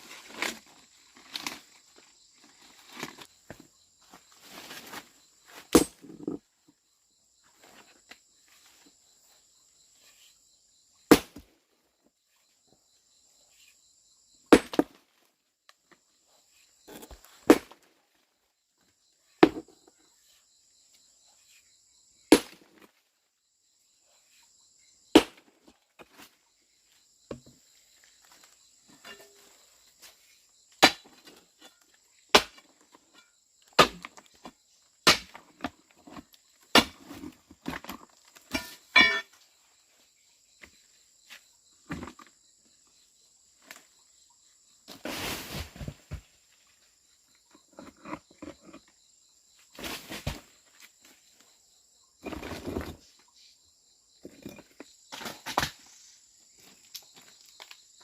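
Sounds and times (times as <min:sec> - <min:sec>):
insects chirring: 0:00.0 - 0:58.0
hand tool striking hard material: 0:32.3 - 0:32.6, 0:35.0 - 0:35.4, 0:38.5 - 0:39.3.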